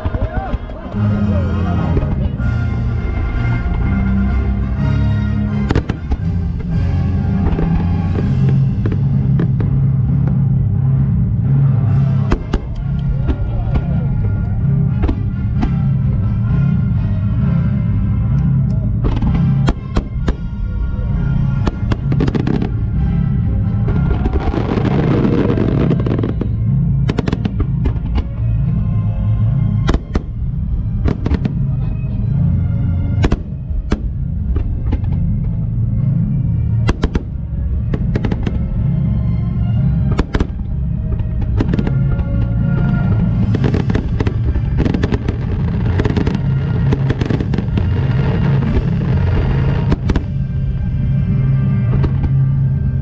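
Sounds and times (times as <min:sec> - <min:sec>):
fireworks crackling: 0:00.0 - 0:04.8, 0:05.5 - 0:10.6, 0:11.9 - 0:16.2, 0:19.0 - 0:28.5, 0:29.8 - 0:31.9, 0:36.8 - 0:39.0, 0:40.0 - 0:53.0
music: 0:00.0 - 0:53.0.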